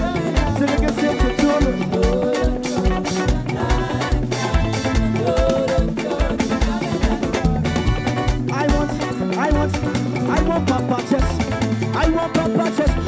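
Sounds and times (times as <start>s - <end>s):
kick drum beat: 0.0s - 9.7s
bass: 0.0s - 13.0s
live band playing upbeat groove: 0.0s - 13.0s
person singing: 0.0s - 13.0s.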